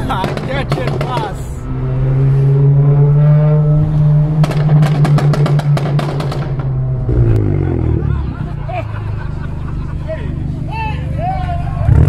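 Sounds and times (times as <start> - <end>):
car engine at high revs: 0.0 - 9.8, 11.8 - 12.0
exhaust crackles and pops: 4.4 - 7.5.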